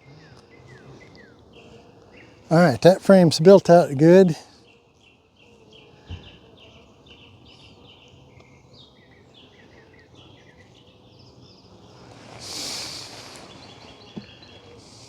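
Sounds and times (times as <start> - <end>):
small birds chirping: 0.0 - 15.0
hissing whoosh: 12.0 - 13.9.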